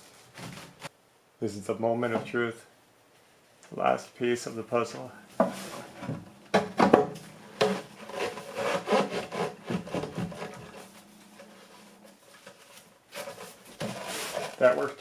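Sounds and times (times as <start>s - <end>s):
pipe rubbing and scraping: 5.4s - 6.2s, 7.3s - 15.0s.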